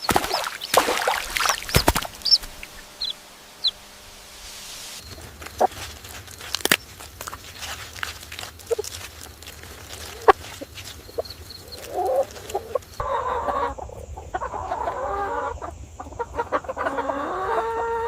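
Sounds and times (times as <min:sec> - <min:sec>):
low steady hum: 0:00.0 - 0:16.5
chickens clucking: 0:00.0 - 0:18.0
chicks chirping: 0:00.0 - 0:18.0.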